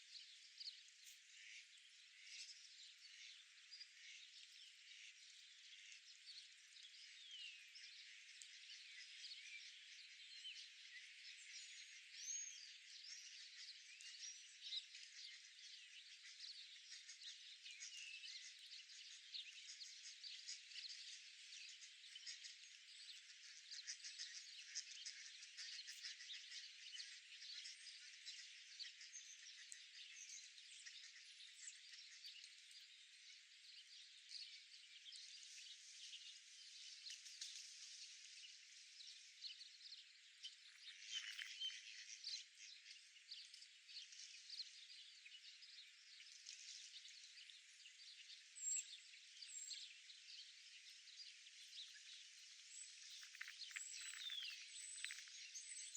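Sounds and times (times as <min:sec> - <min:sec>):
chorus of rapid chirping: 0:53.1 - 0:55.4.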